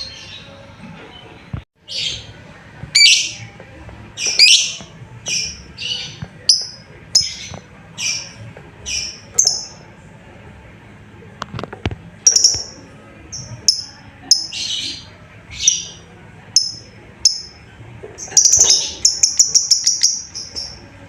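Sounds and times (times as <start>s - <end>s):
lovebird chirping: 3.0s - 3.4s, 4.2s - 9.8s, 12.3s - 16.0s, 18.2s - 20.8s.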